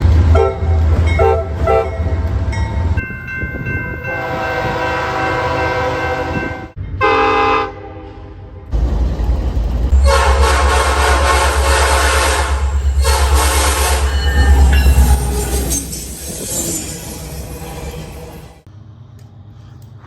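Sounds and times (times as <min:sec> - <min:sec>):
locomotive air horn blasts: 0:00.3 - 0:02.1, 0:04.1 - 0:08.5, 0:09.9 - 0:15.6.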